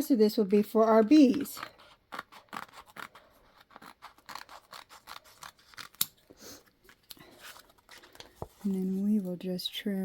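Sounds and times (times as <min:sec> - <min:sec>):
scissors snipping vinyl: 0:00.8 - 0:06.3.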